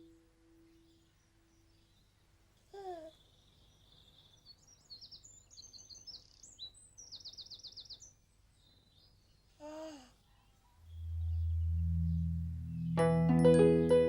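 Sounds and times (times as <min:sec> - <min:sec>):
faint songbird singing: 0:00.0 - 0:14.0.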